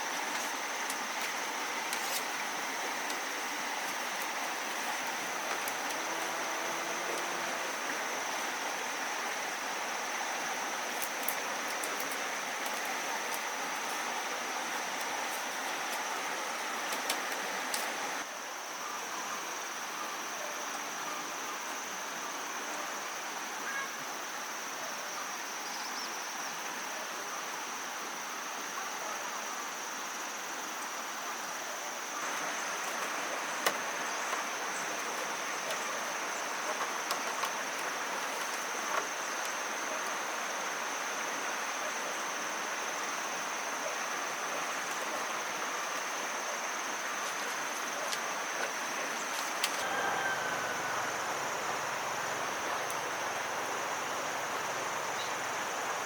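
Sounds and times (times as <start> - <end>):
insects droning: 0.0 - 56.0
outdoor background noise: 0.0 - 56.0.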